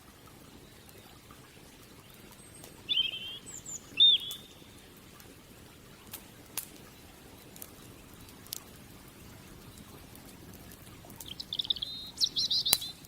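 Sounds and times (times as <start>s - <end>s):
wood fire crackling: 0.0s - 13.0s
bird chirping: 2.0s - 4.8s, 11.2s - 13.0s.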